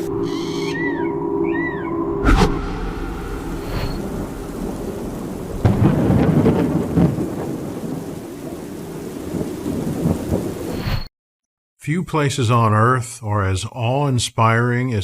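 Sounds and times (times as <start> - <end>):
rolling thunder: 2.2 - 10.8
steady rain: 2.7 - 11.0.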